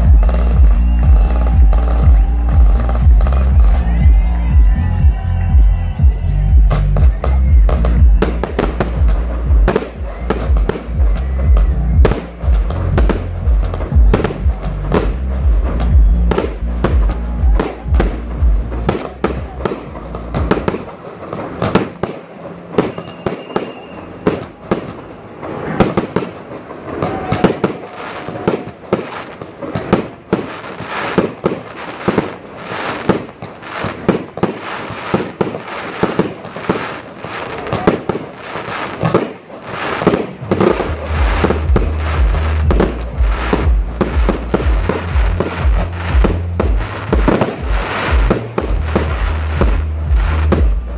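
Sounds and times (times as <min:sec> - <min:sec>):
fireworks bursting and crackling: 0:00.0 - 0:50.9.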